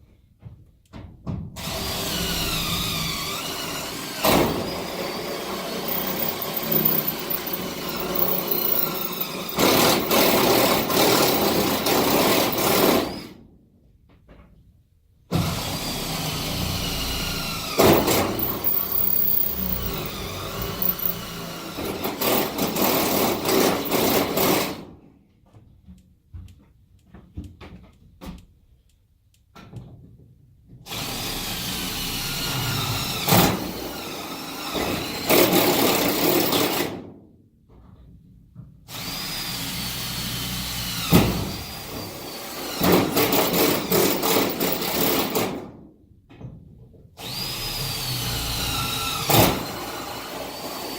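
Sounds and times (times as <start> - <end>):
power drill boring holes: 1.6 - 13.4, 15.3 - 24.9, 30.9 - 37.0, 38.9 - 45.7, 47.2 - 50.9.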